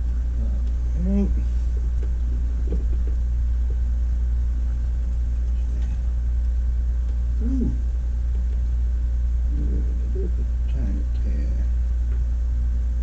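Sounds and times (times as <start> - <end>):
loud low electrical hum: 0.0 - 13.0
brief low vocal sound: 7.4 - 7.8, 9.5 - 11.1.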